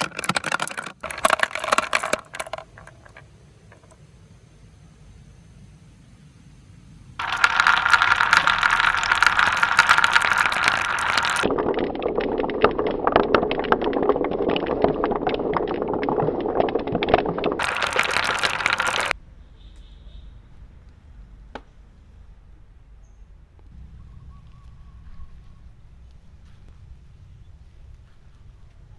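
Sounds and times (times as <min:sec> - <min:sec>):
marbles clattering down plastic track: 0:00.0 - 0:04.0, 0:07.2 - 0:19.1.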